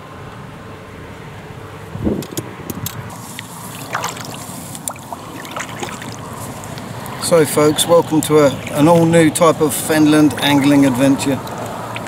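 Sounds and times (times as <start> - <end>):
water splashing around paddle: 3.1 - 9.2, 11.3 - 12.0.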